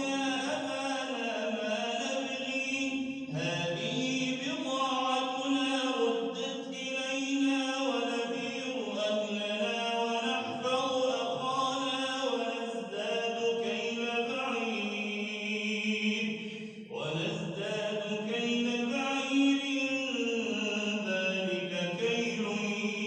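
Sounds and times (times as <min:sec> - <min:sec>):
person chanting recitation: 0:00.0 - 0:23.0.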